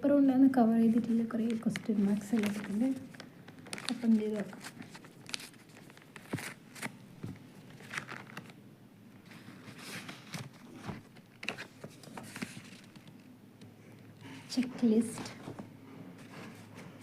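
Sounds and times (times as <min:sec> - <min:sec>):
paper wrapping tearing and crinkling: 0:01.4 - 0:07.0, 0:07.6 - 0:08.6, 0:09.2 - 0:13.3.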